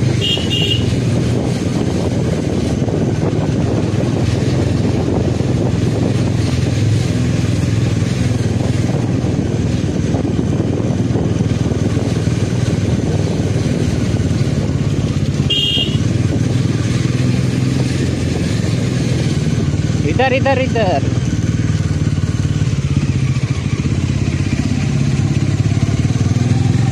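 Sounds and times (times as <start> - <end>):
motorcycle engine running: 0.0 - 26.9
road rumble: 0.0 - 26.9
wind: 0.0 - 26.9.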